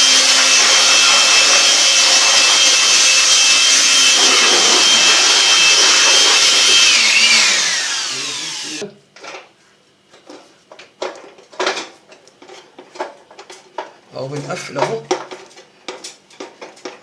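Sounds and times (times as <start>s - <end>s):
electric blower whining: 0.0s - 8.8s.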